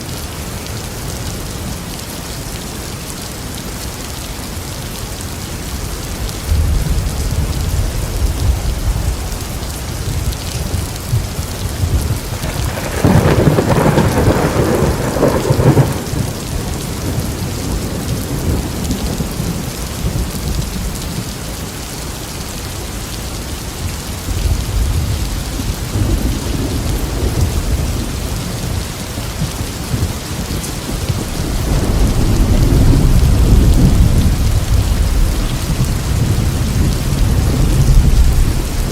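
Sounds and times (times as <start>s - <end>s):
rain falling: 0.0s - 38.9s
rolling thunder: 6.2s - 21.3s, 24.2s - 38.9s.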